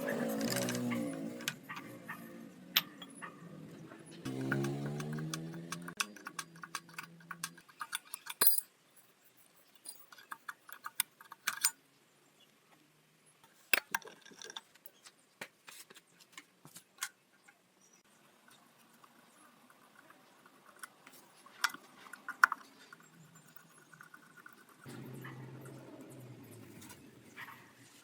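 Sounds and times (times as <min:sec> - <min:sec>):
metal tools clinking: 0:04.3 - 0:11.7.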